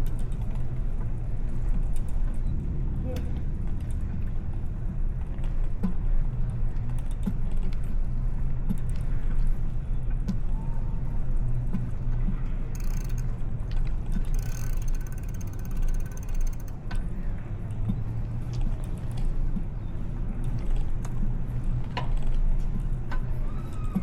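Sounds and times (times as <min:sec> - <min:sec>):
bicycle freewheel ticking: 0:12.8 - 0:16.8
small clicks: 0:12.8 - 0:16.8.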